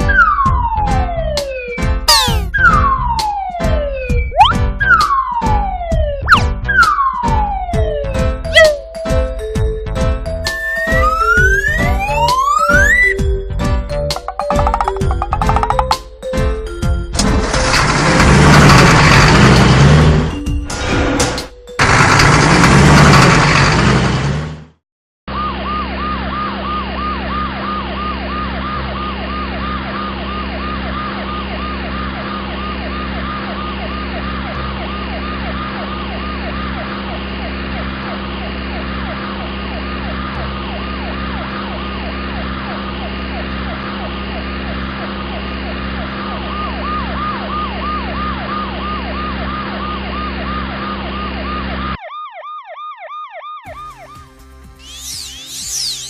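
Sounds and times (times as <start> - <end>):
cartoon siren wail: 0.0 - 9.0, 10.4 - 13.3, 25.3 - 56.0.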